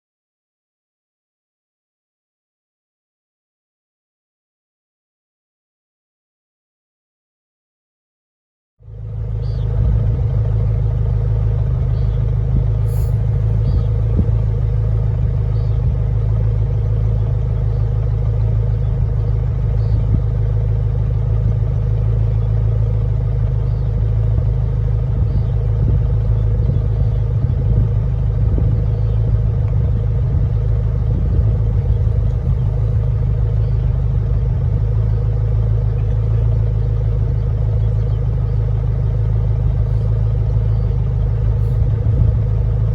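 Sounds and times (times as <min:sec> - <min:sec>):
car cabin road rumble: 0:08.9 - 0:42.9.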